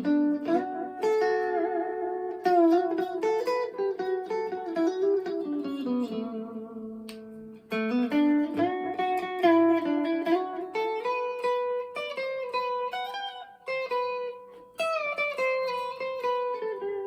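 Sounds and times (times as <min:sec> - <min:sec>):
electric guitar playing: 0:00.0 - 0:17.0.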